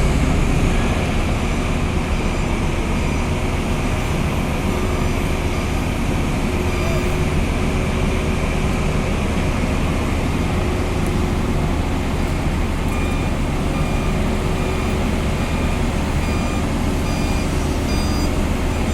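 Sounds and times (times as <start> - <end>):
heavy engine rumbling: 0.0 - 18.9
faint repeating beep: 11.1 - 18.9.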